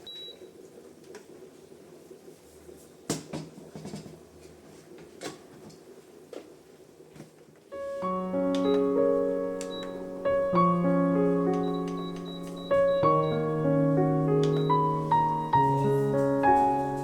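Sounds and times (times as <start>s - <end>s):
soft piano music: 7.7s - 17.0s.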